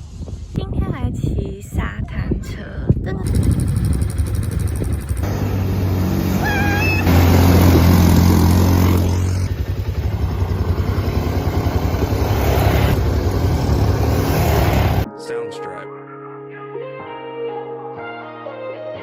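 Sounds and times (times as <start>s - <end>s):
atv engines running: 3.2s - 15.1s.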